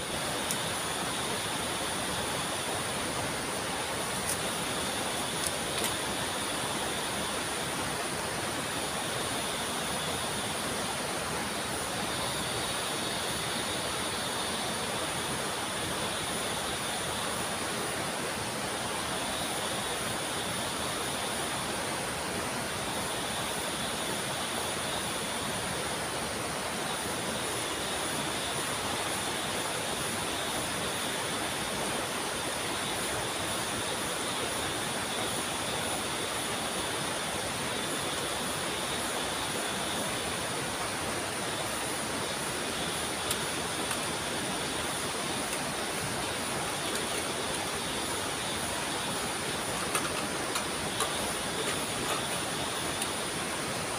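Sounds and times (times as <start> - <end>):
rapids and waterfall rushing: 0.0 - 53.9
steady high whine: 26.9 - 53.9.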